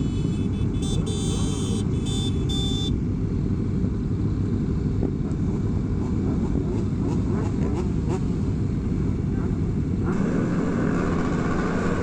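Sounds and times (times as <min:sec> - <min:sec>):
motorcycle engine rumble: 0:08.9 - 0:12.0.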